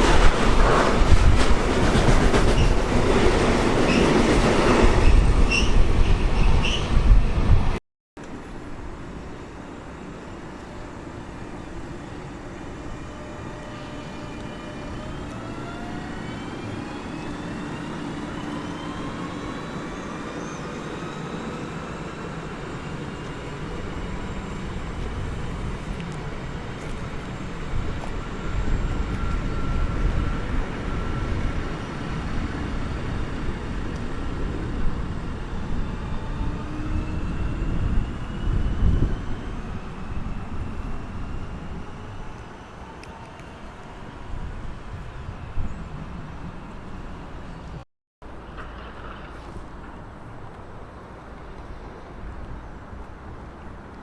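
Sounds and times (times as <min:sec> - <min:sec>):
train rumble: 0:00.0 - 0:54.0
train whine rising in pitch: 0:09.1 - 0:47.6.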